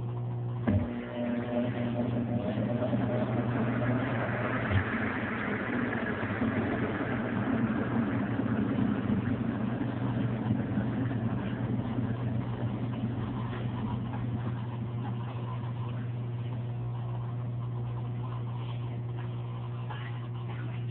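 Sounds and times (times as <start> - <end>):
washing machine motor hum: 0.0 - 20.9
washing machine rushing noise: 0.7 - 20.9.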